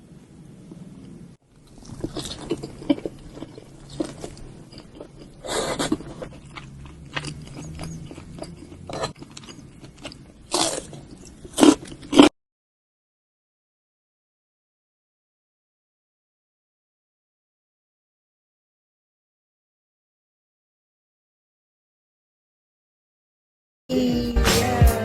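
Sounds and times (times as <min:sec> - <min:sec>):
crunchy rustling of food: 0:01.4 - 0:12.3.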